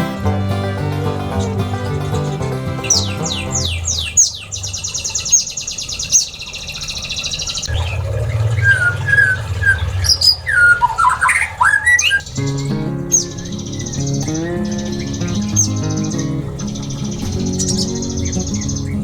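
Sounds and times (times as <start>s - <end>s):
birds whistling and chirping: 0.0s - 19.0s
high rattling bird trill: 0.0s - 19.0s
low hum: 7.7s - 19.0s.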